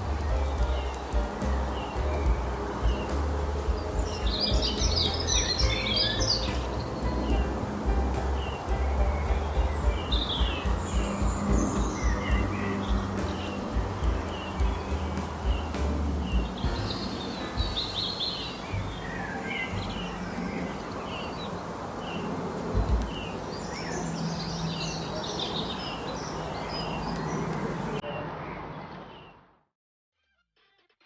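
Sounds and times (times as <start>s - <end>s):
low thumps: 0.0s - 19.2s, 22.8s - 23.4s
rushing background noise: 0.0s - 28.6s
birds chirping: 0.0s - 29.4s.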